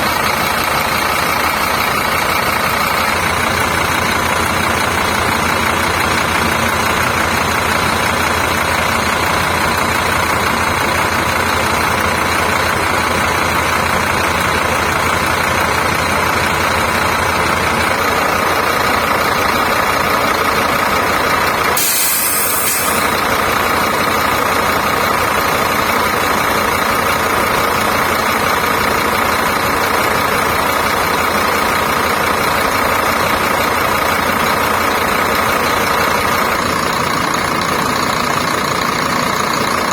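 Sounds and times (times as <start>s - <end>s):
diesel engine idling: 0.0s - 39.9s
air hiss: 21.8s - 23.3s.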